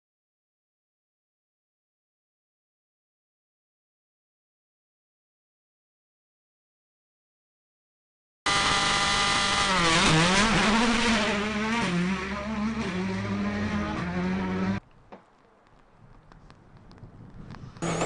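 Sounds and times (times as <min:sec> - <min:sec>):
car engine revving: 0:08.5 - 0:14.8
faint clicks: 0:14.8 - 0:17.8.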